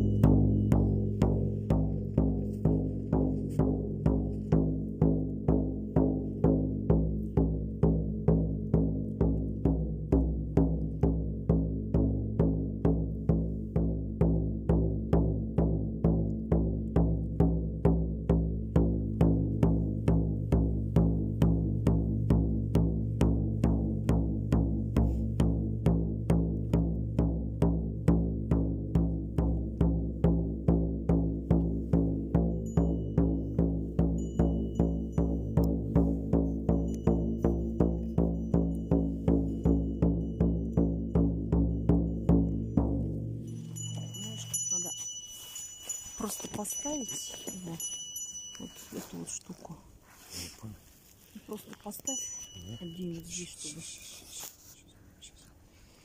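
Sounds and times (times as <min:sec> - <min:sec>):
frame drum beating: 0:00.0 - 0:49.4.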